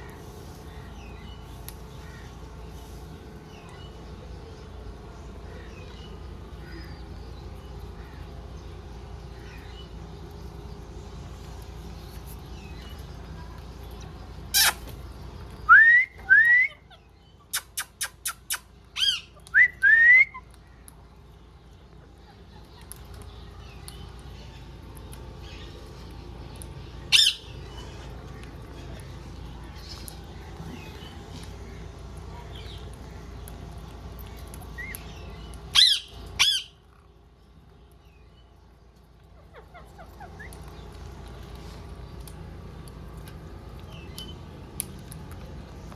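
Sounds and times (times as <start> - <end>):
parrot squawky call: 14.5 - 14.8, 16.2 - 20.4, 27.1 - 27.5, 35.7 - 36.8
soft parrot chirps: 14.5 - 14.9, 35.7 - 36.8
parrot whistling: 15.7 - 16.8, 35.8 - 36.7.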